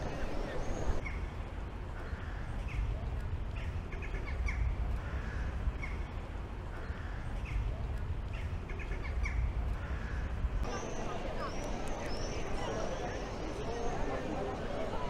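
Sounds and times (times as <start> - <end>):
busy square background noise: 0.0 - 15.0
birds calling: 8.3 - 15.0.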